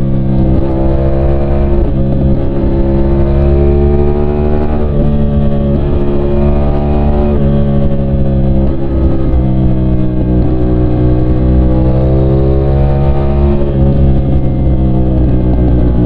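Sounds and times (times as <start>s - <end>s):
motorcycle engine pulling hard: 0.0s - 16.0s.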